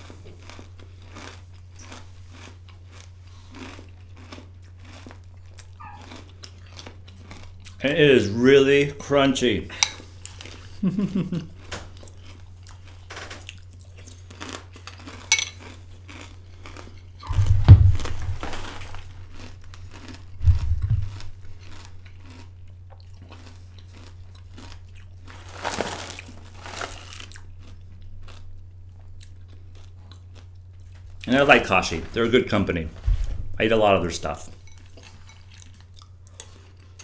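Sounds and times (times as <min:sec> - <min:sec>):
person chewing crunchy cereal: 0:00.0 - 0:08.0, 0:09.7 - 0:31.8, 0:34.2 - 0:37.0
steady low hum: 0:00.0 - 0:37.0
loud low thumps: 0:17.2 - 0:18.6, 0:20.3 - 0:21.4.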